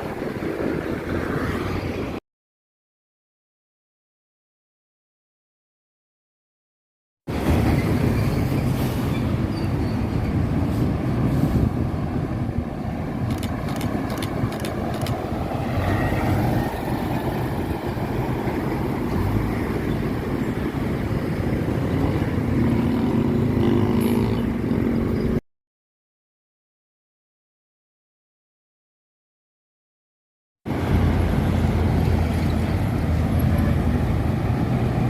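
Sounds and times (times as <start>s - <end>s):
road traffic rumble: 0.0s - 2.2s, 7.3s - 25.4s, 30.7s - 35.0s
sharp clicks: 13.3s - 15.2s
truck engine drone: 30.7s - 35.0s.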